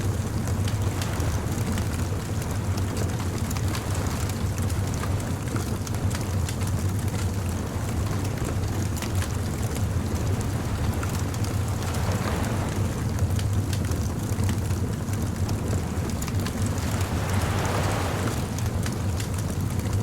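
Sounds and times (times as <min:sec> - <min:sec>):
bonfire crackling: 0:05.0 - 0:20.0.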